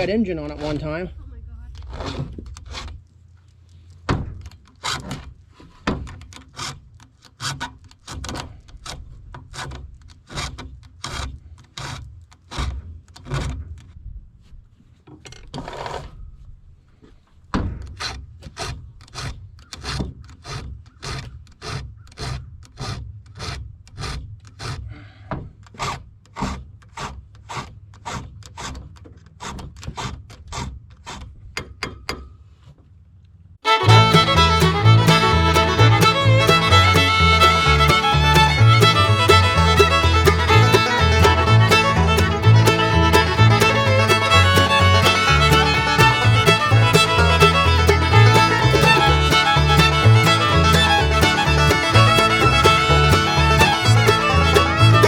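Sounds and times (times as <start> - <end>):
hand tool rasping: 18.0 - 24.9, 25.7 - 31.3, 33.7 - 55.0.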